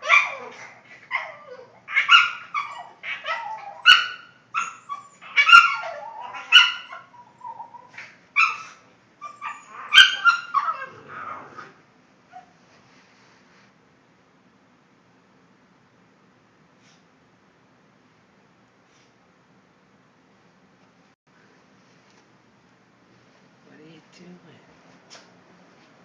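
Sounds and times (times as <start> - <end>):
dog barking and whining: 0.0 - 12.6.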